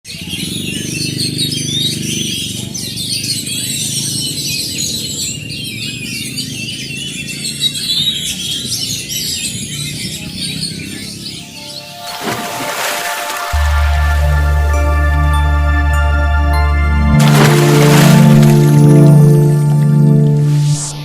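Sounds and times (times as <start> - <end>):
birds singing: 0.1 - 13.3.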